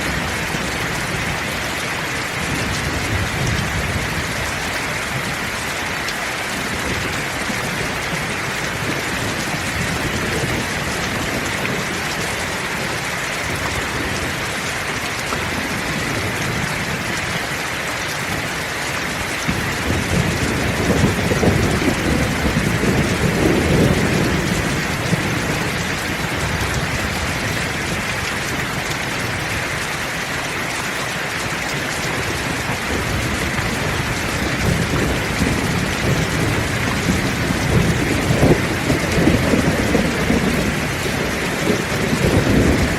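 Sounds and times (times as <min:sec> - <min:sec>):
heavy rain falling: 0:00.0 - 0:42.9
rumble of thunder: 0:19.4 - 0:28.1, 0:32.3 - 0:42.9.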